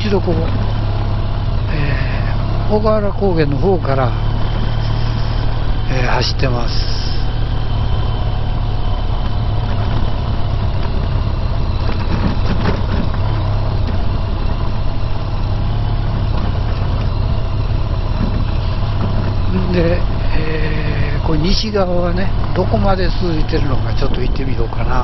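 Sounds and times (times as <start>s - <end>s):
motorcycle engine running: 0.0s - 25.0s
wind and road noise: 0.0s - 25.0s.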